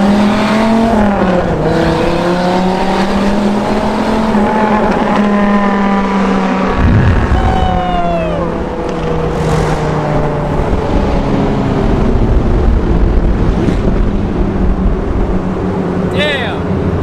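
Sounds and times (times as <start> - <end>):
loud car engine exhaust in tunnel: 0.0 - 17.0
rushing wind noise: 6.4 - 17.0.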